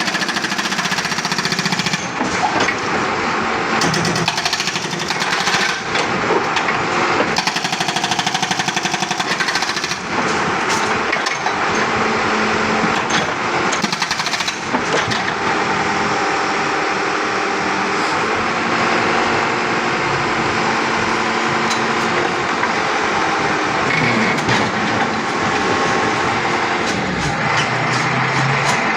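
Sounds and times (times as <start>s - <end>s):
hydraulic breaker hammering concrete: 0.0s - 2.9s, 3.8s - 15.6s, 20.6s - 28.9s
backhoe engine running: 0.0s - 28.9s.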